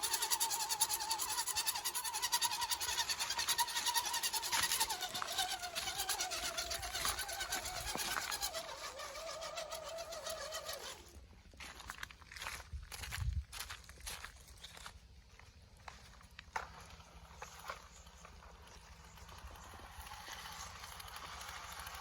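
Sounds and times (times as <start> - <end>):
electric motor and gears whining: 0.0 - 11.2, 16.8 - 22.0.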